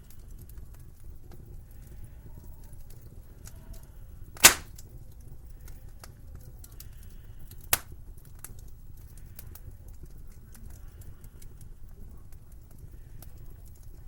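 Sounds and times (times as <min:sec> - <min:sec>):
loud sharp pop from fire: 0:04.4 - 0:04.7
wood fire crackling: 0:04.4 - 0:04.7.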